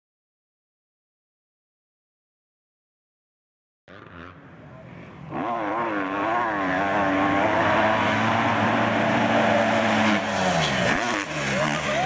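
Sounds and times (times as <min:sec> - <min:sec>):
dirt bike engine revving: 0:03.9 - 0:12.0.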